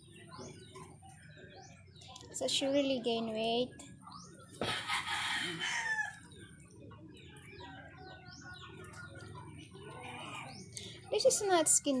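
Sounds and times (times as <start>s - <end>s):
rooster crowing: 4.6s - 6.2s.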